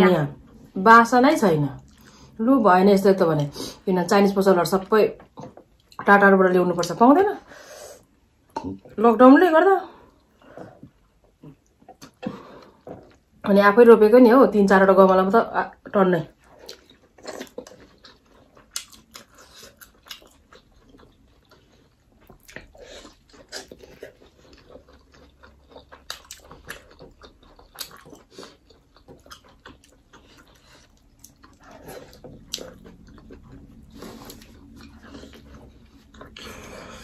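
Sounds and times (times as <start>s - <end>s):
people chewing with mouth smacks: 1.8s - 2.4s, 10.0s - 13.4s, 16.3s - 37.0s.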